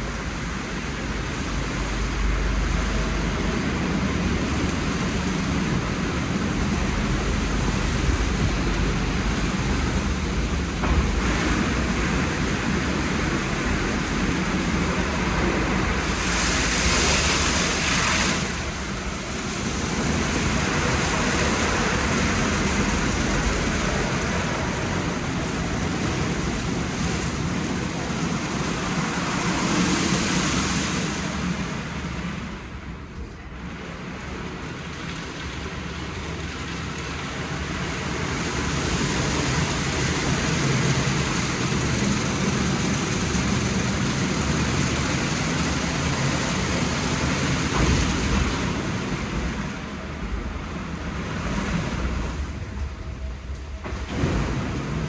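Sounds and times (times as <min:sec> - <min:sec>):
car wash water spraying: 0:00.0 - 0:33.0, 0:33.7 - 0:55.0
loud hiss: 0:09.3 - 0:23.2.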